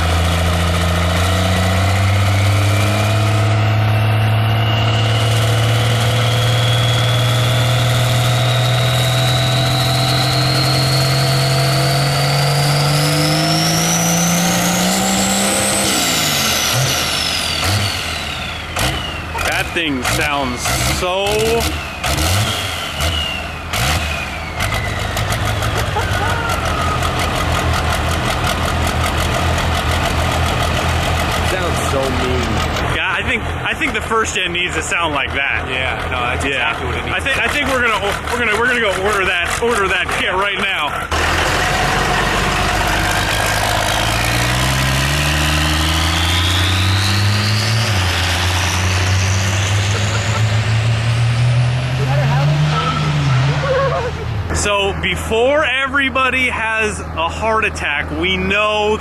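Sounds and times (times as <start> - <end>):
diesel truck engine idling: 14.7 - 47.0, 47.8 - 59.0.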